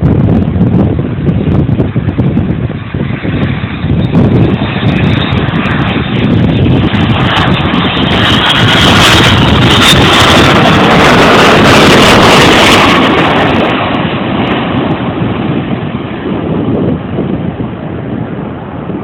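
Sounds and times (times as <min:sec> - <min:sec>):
jet engines of departing plane: 0:00.0 - 0:19.0
wind buffeting microphone: 0:00.0 - 0:19.0.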